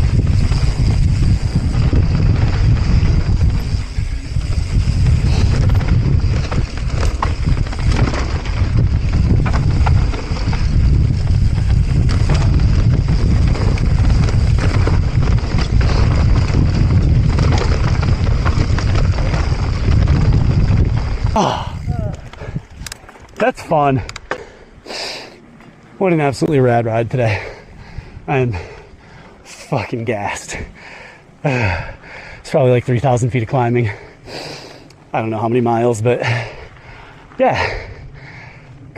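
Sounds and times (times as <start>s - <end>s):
bike knocking and rattling: 0.0s - 24.6s
wind buffeting microphone: 0.0s - 25.6s, 26.2s - 29.5s, 36.0s - 38.9s
tyres on dirt trail: 0.0s - 38.9s.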